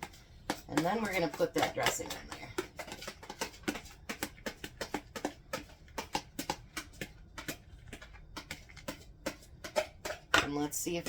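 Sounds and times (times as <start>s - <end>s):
spoon scraping against a bowl: 8.0s - 10.7s.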